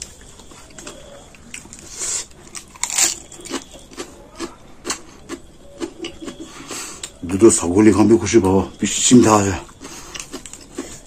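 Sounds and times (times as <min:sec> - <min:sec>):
chewing raw cabbage crunches: 0:00.0 - 0:07.2, 0:09.6 - 0:11.0.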